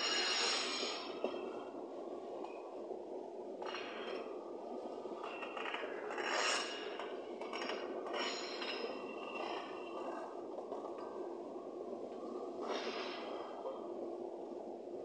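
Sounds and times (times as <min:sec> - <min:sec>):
metallic wheel squeals on rail: 0:00.0 - 0:01.7, 0:05.2 - 0:10.0.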